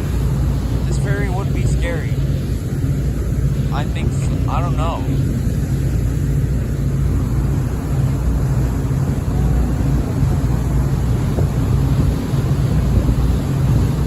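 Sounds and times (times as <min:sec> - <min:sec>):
ferry engines droning: 0:00.0 - 0:14.0
wind buffeting microphone: 0:00.0 - 0:14.0.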